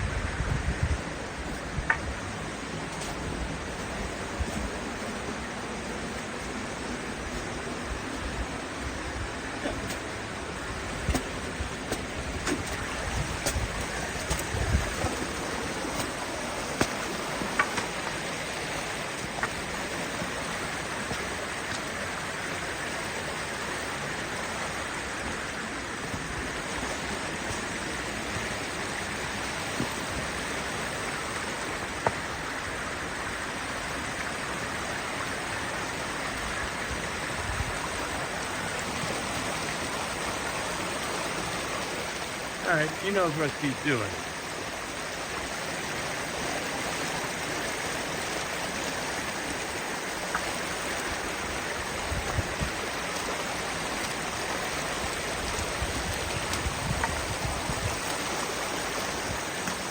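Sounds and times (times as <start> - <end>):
fast-flowing creek water: 0.0 - 59.9
sharp knocks and low bumps: 11.0 - 18.2.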